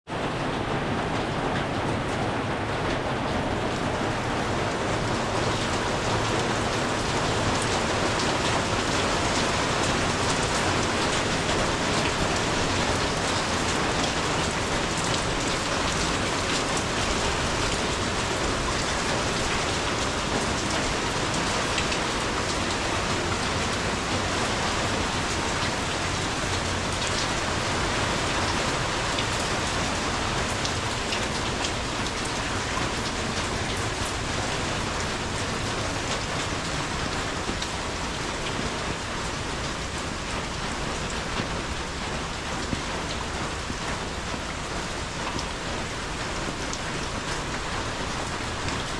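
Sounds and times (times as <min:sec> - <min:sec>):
rain pattering on ground: 0:00.1 - 0:48.9.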